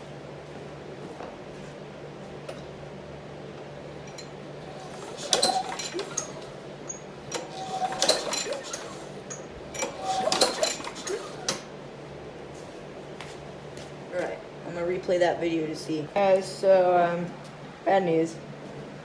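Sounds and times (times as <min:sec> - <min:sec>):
recoil starter pulled: 0:04.7 - 0:11.6.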